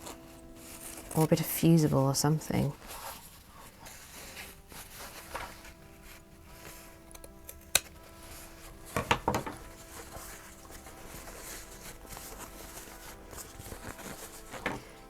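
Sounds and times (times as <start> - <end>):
scissors snipping fabric: 6.5 - 12.6.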